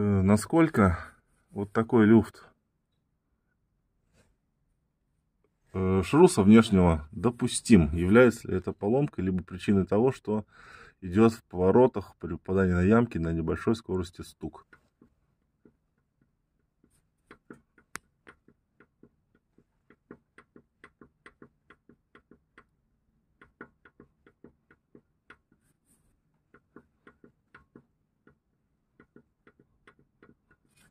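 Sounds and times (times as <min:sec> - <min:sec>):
faint irregular clicks from joint: 0:14.5 - 0:30.9.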